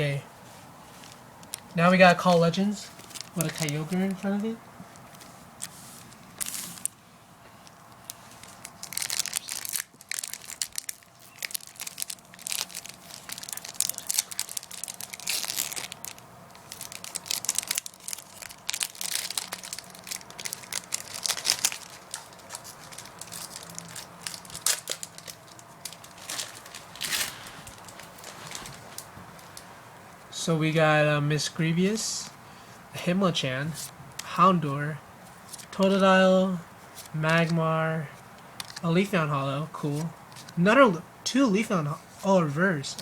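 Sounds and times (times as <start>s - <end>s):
foil wrapper crinkling and tearing: 1.4s - 7.0s, 7.9s - 29.6s.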